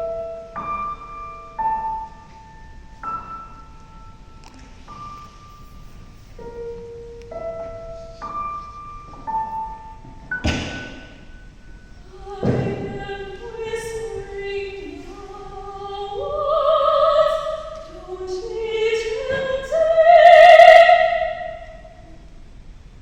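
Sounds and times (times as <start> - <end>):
classical singing with vibrato: 11.9 - 22.2.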